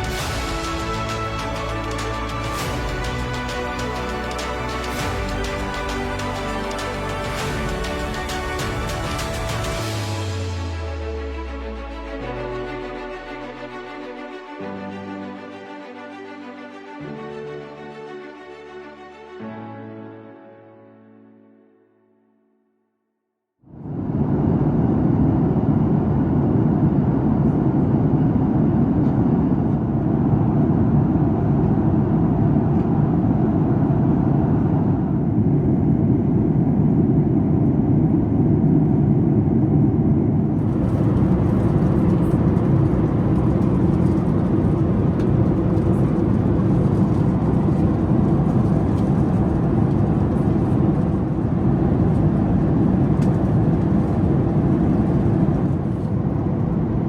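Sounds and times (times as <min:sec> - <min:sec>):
airplane cabin noise: 0:23.8 - 0:57.0.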